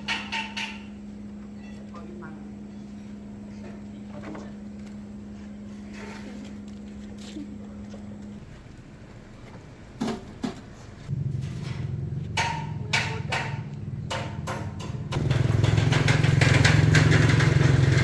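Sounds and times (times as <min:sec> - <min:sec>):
small engine idling: 0:11.1 - 0:18.0
sharp knocks: 0:11.7 - 0:17.6.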